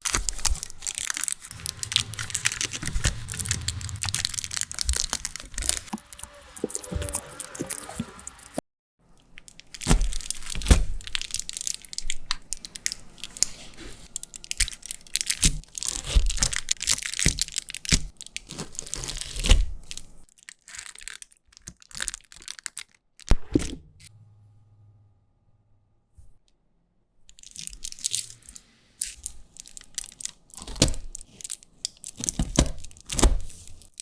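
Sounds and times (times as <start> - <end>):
chip packaging crinkling: 0.0 - 8.6, 9.4 - 23.0, 27.3 - 34.0
potato chips crunching: 0.0 - 8.6.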